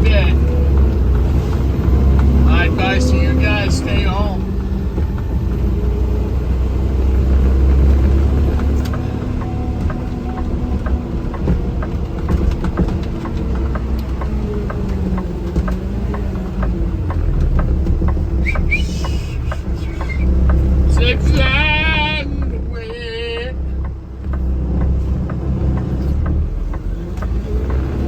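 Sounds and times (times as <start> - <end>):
vehicle engine and road noise: 0.0 - 28.0
short high whistle-like sounds: 18.4 - 20.2.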